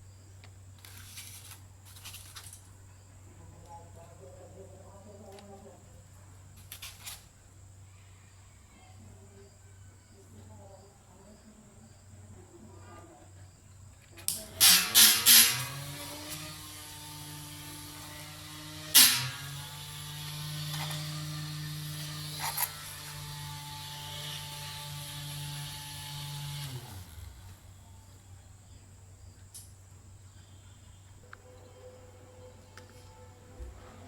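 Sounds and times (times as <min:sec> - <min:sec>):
toy motor humming: 0:14.2 - 0:27.9.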